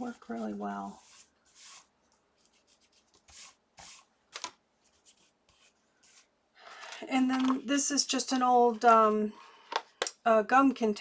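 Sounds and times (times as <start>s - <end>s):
soft rubbing on cardstock: 0.0s - 4.1s, 4.8s - 6.3s.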